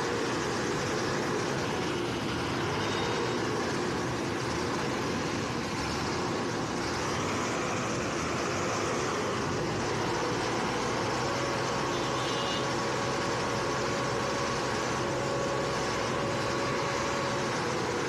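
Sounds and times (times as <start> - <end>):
road noise: 0.0 - 18.0
vehicle engine: 0.0 - 18.0.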